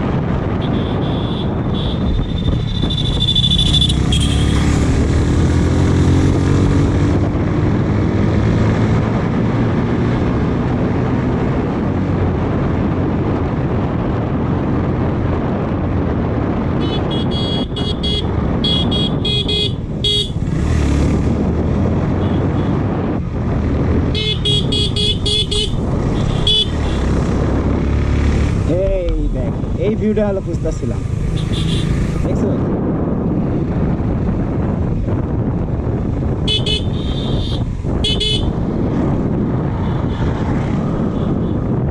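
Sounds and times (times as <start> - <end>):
motorcycle engine: 0.0 - 12.4, 16.6 - 29.9, 30.8 - 32.3, 33.3 - 41.9
wind rumble: 0.0 - 41.9
vehicle horn toots: 0.6 - 2.2, 2.8 - 4.6, 16.8 - 20.4, 24.1 - 27.0, 31.4 - 31.9, 36.4 - 38.5.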